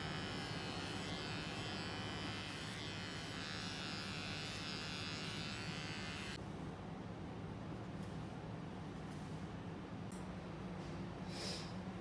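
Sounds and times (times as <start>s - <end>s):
electric hair clippers buzzing: 0.0s - 6.4s.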